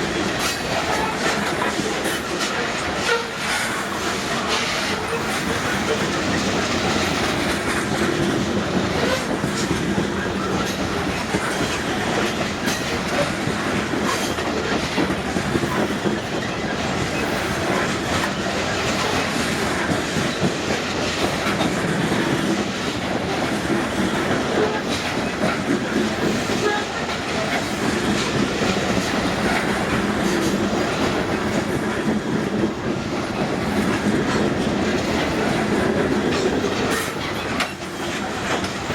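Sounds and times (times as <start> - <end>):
freight train clattering past: 0.0 - 38.9
wheels clicking over rail joints: 0.0 - 38.9.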